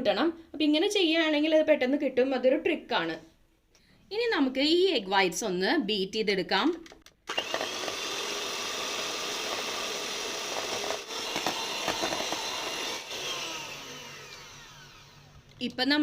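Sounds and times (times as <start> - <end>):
electric beater whisking: 7.3 - 15.5.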